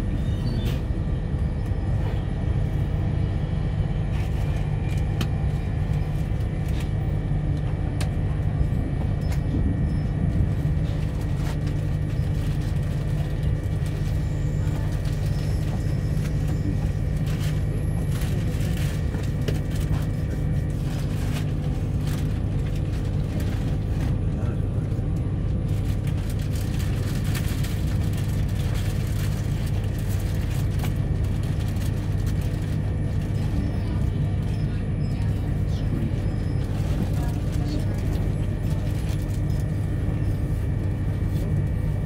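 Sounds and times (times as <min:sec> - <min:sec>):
train interior rumble: 0:00.0 - 0:42.0.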